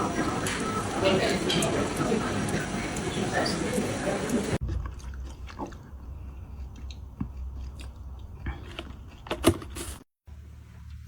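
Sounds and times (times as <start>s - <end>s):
chewing and biting: 4.6s - 10.0s.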